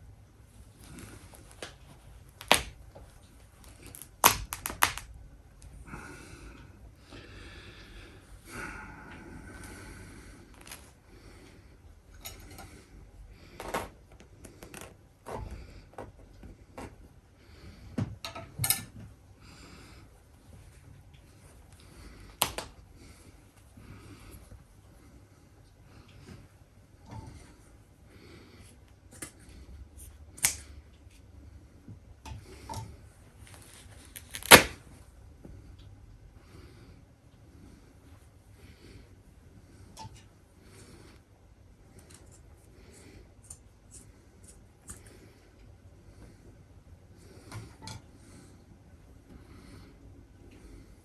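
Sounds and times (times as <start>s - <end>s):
stuffed toy tearing: 2.4s - 2.8s, 3.6s - 5.1s, 33.5s - 34.9s
soft handling sounds: 9.4s - 11.4s, 32.6s - 35.6s.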